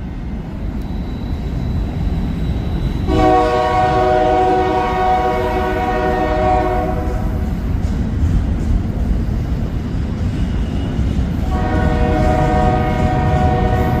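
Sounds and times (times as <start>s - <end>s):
low rumble of moving train: 0.0s - 14.0s
locomotive air horn blasts: 3.1s - 7.4s, 11.4s - 14.0s.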